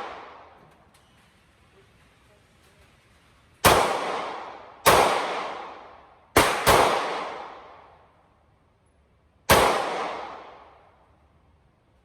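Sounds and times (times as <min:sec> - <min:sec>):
pistol shots echoing: 0:00.0 - 0:00.6, 0:03.6 - 0:08.0, 0:09.5 - 0:10.9.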